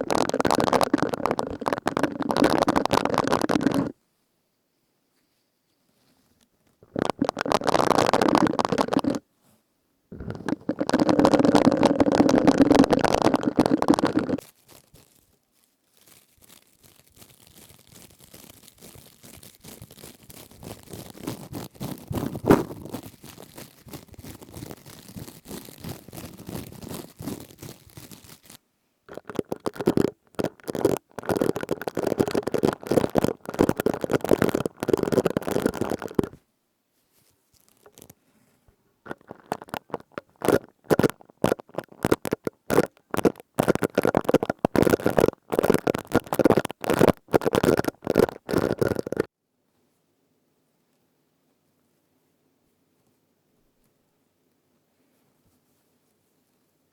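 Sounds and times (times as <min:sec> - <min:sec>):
crisp crackling from rubbing: 0:00.0 - 0:04.0, 0:10.1 - 0:36.4, 0:37.0 - 0:49.3.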